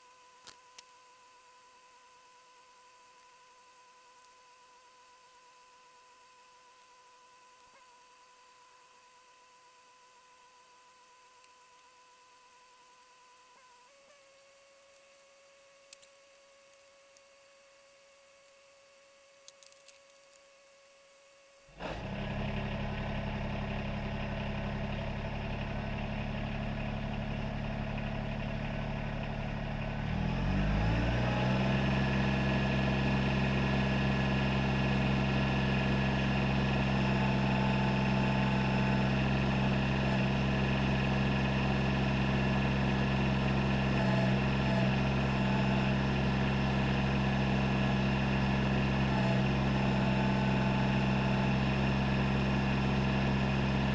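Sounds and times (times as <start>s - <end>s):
tractor diesel engine running: 21.8s - 53.9s.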